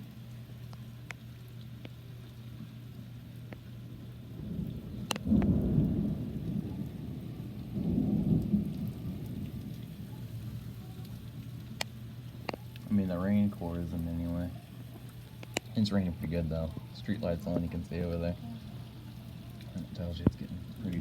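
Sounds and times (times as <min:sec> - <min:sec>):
steady rain falling: 0:00.0 - 0:21.0
thunder rumbling: 0:04.3 - 0:14.0.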